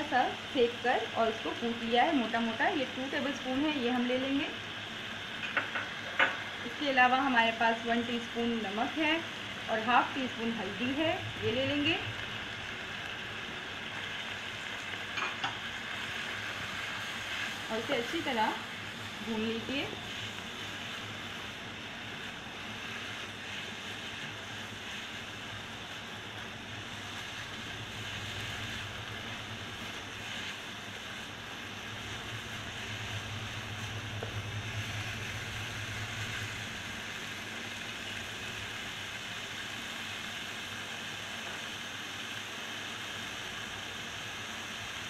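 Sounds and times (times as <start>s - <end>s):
meat sizzling in oil: 0.0s - 45.0s
low hum: 8.1s - 13.8s, 25.2s - 38.9s
spatula stirring in wok: 13.9s - 38.2s.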